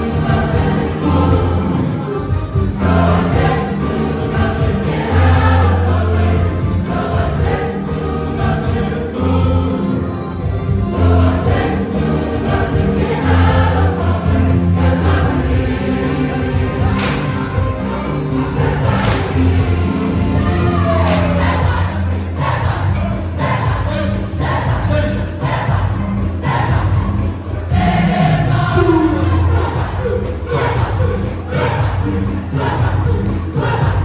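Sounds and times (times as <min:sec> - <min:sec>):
church choir singing: 0:00.0 - 0:34.0
instrumental accompaniment: 0:00.0 - 0:34.0
steady bass: 0:00.0 - 0:34.0.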